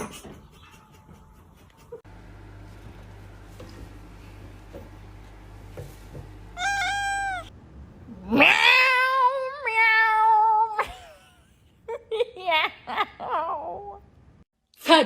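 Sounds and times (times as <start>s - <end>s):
cat meowing: 6.6s - 7.5s
cat yowling: 6.6s - 7.5s, 8.1s - 10.8s.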